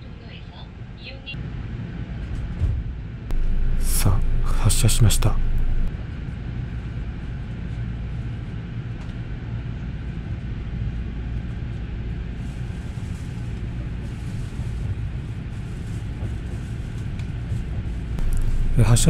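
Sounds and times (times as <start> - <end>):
train running rumble: 3.3 - 5.9, 14.0 - 19.0.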